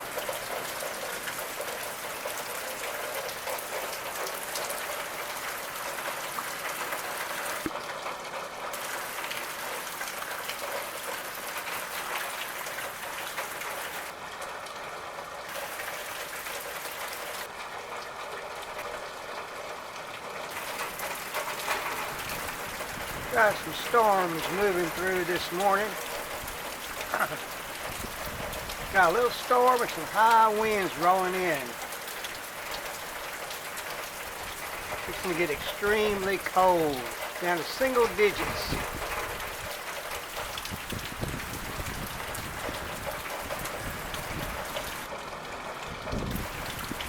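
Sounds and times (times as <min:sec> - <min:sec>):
rain: 0:00.0 - 0:47.0
high wind: 0:22.0 - 0:23.7, 0:27.6 - 0:29.1, 0:40.4 - 0:45.1, 0:45.8 - 0:47.0.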